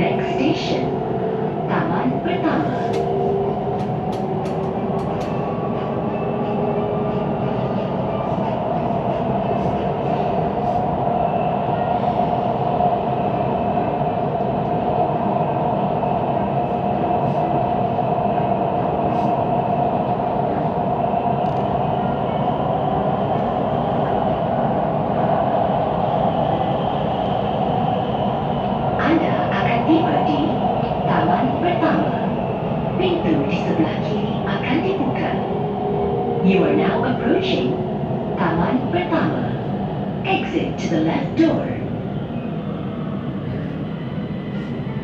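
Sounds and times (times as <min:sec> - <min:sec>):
metro train rolling rumble: 0:00.0 - 0:45.0
train drone: 0:00.0 - 0:45.0.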